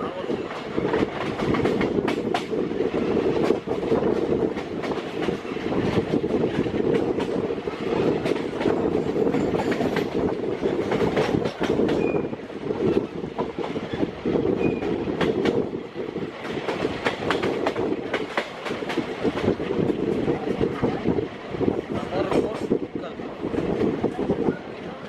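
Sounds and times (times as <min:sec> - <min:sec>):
train rumble on track: 0:00.0 - 0:25.0
wheels clattering over rail joints: 0:08.2 - 0:12.2.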